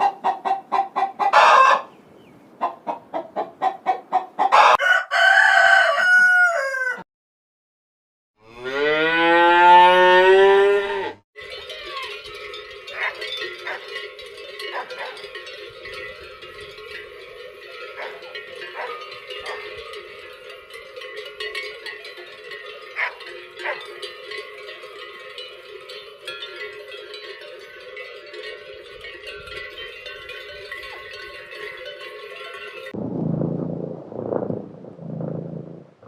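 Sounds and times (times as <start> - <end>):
cowbells clanking: 11.4 - 33.0.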